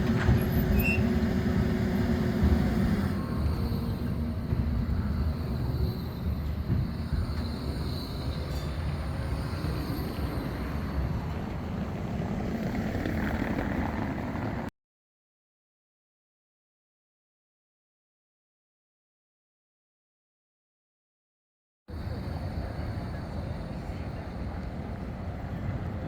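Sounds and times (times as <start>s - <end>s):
tram wheels rumbling on rails: 0.0s - 14.7s, 21.9s - 26.0s.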